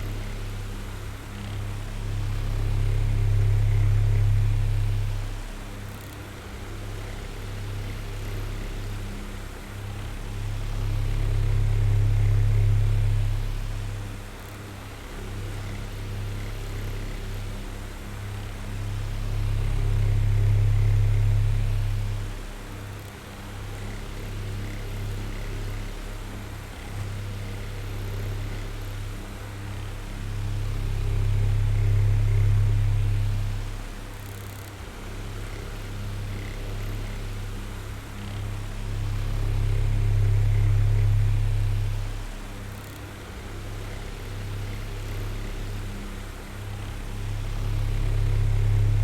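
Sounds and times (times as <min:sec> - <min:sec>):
electric fan motor hum and whir: 0:00.0 - 0:49.0.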